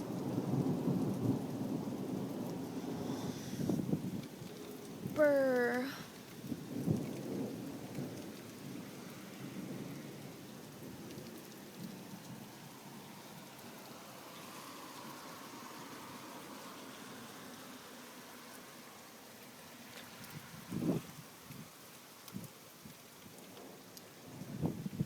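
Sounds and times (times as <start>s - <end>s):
low roll of thunder: 0.0s - 13.2s, 20.4s - 21.7s, 23.3s - 25.0s
heavy rain falling: 0.0s - 25.0s.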